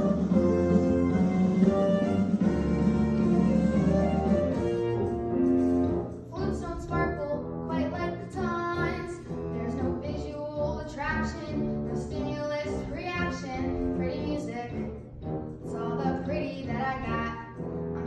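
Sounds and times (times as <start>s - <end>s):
band accompaniment: 0.0s - 8.0s.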